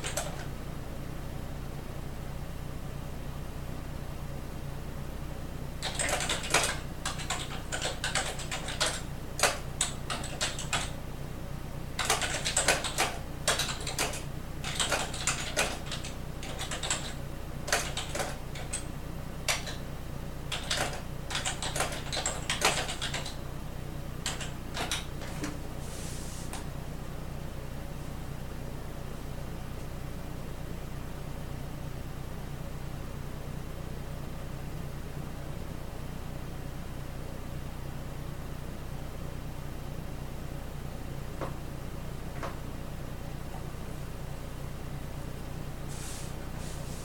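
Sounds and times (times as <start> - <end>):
keyboard typing: 0.0 - 0.5, 5.8 - 11.0, 12.0 - 18.9, 19.5 - 19.8, 20.5 - 23.4, 24.2 - 25.4
steady low hum: 0.0 - 47.0.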